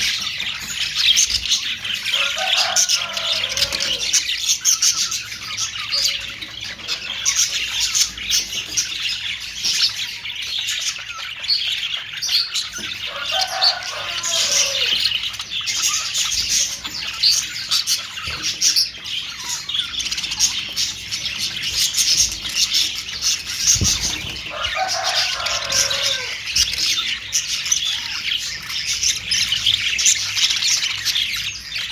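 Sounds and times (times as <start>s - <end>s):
budgerigars chirping and chattering: 0.0s - 31.9s
low-pitched squawking calls: 1.2s - 8.7s, 12.4s - 28.6s.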